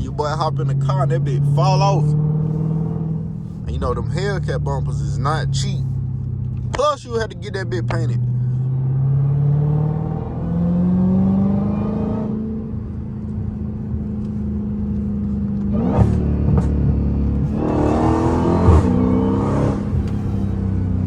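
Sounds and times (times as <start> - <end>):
sharp exhaust cracks: 0.0 - 8.7
car exhaust accelerating: 0.0 - 21.0.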